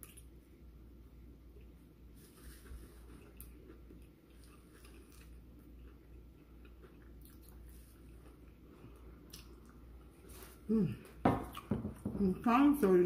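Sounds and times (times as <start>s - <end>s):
low steady hum: 0.0s - 13.0s
person chewing food: 1.5s - 11.7s.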